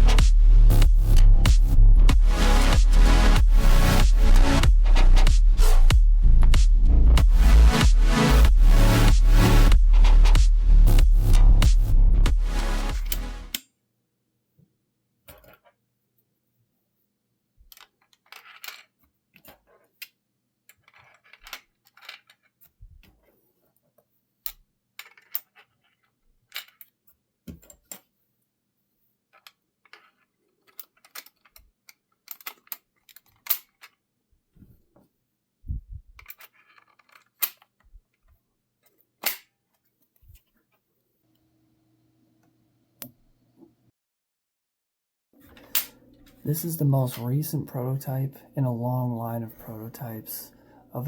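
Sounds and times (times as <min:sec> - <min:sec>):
plastic parts clicking and rattling: 0:15.2 - 0:15.8, 0:17.6 - 0:23.3, 0:24.4 - 0:28.1, 0:29.3 - 0:34.1, 0:36.1 - 0:40.6
sharp plastic snaps: 0:39.2 - 0:39.5.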